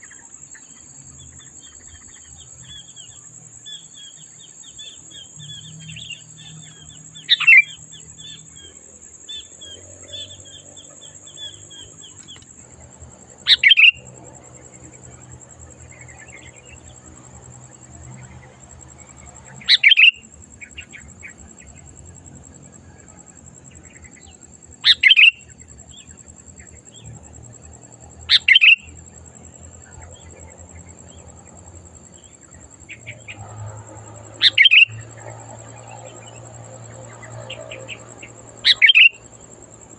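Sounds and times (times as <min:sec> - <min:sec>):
faint bird twittering: 0:00.0 - 0:12.6, 0:13.5 - 0:16.9, 0:19.1 - 0:21.8, 0:23.8 - 0:27.1, 0:28.3 - 0:29.0, 0:34.3 - 0:39.4
bird calling loud clear phrases: 0:38.7 - 0:39.2.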